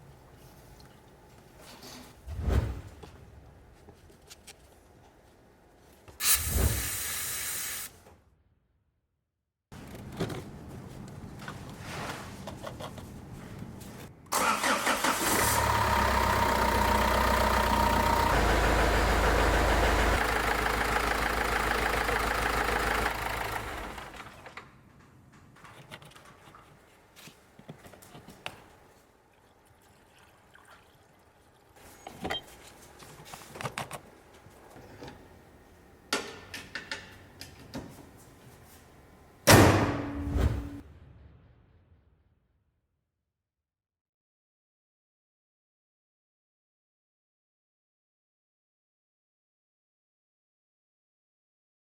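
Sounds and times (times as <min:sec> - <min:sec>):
diesel engine starting and idling: 0:14.3 - 0:24.8.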